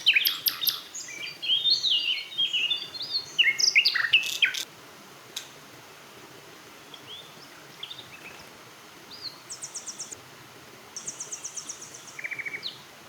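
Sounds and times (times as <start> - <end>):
birds chirping and trilling: 0.0 - 4.7, 9.1 - 10.2
steady background hiss: 0.0 - 13.0.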